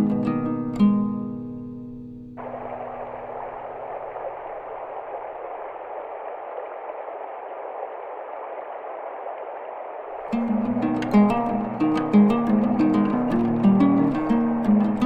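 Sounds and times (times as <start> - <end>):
plucked-string music: 0.0 - 2.4, 10.2 - 15.0
flowing water rushing: 2.4 - 15.0.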